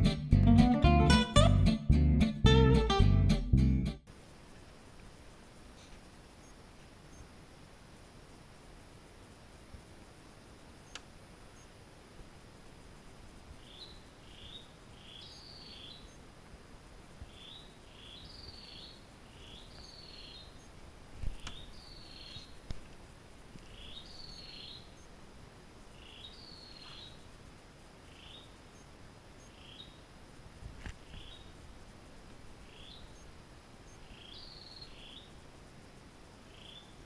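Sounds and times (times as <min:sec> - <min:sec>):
low background noise: 0:00.0 - 0:37.0
bird singing: 0:13.6 - 0:16.2, 0:17.3 - 0:20.7, 0:21.4 - 0:22.6, 0:23.6 - 0:25.1, 0:25.9 - 0:27.2, 0:28.1 - 0:28.6, 0:29.4 - 0:30.0, 0:31.0 - 0:31.5, 0:32.7 - 0:33.3, 0:33.9 - 0:35.3, 0:36.5 - 0:37.0.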